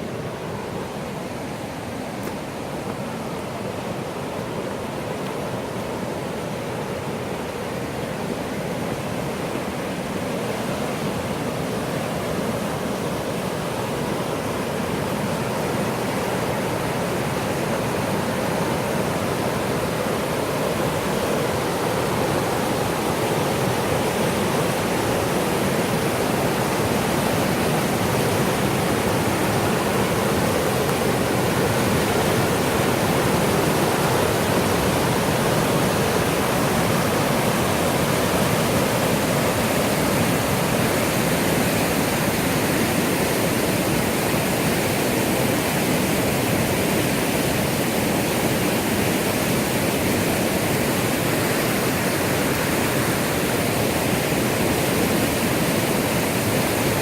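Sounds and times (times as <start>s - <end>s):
water rushing over rocks: 0.0s - 57.0s.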